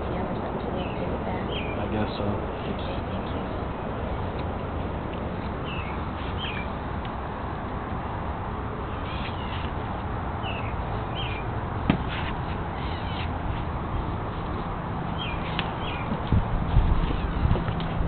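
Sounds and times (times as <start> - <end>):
bird calling: 0.0 - 4.4, 5.6 - 6.8, 8.8 - 9.8, 10.4 - 13.7, 15.1 - 16.2
outdoor background hiss: 0.0 - 18.0.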